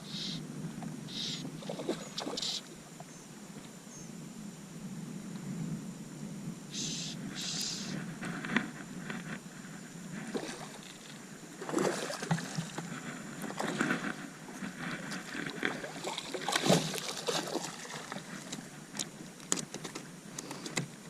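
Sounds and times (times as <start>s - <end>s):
water splashing around boat: 1.1s - 2.7s, 10.2s - 21.0s.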